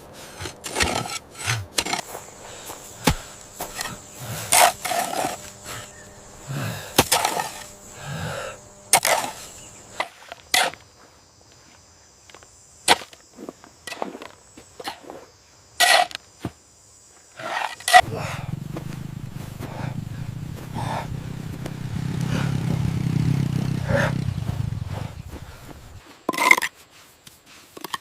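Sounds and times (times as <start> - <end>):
wood being struck: 0.4 - 9.5.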